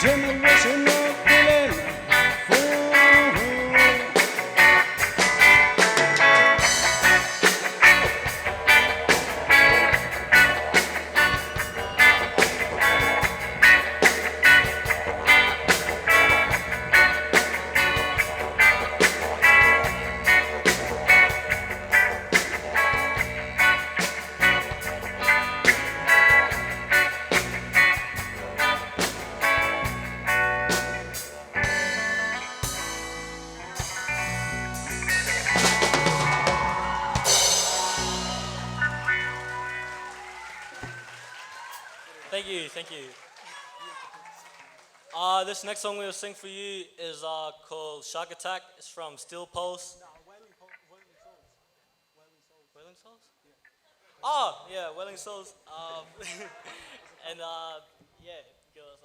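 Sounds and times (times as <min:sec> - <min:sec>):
reggae band playing: 0:00.0 - 0:41.2.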